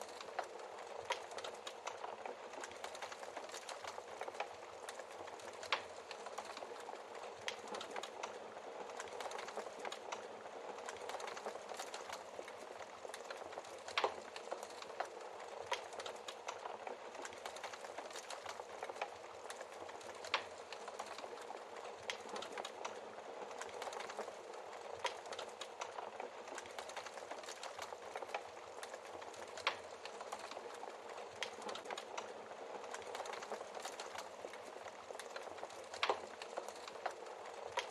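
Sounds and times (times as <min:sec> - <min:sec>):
wood fire crackling: 0:00.0 - 0:37.9.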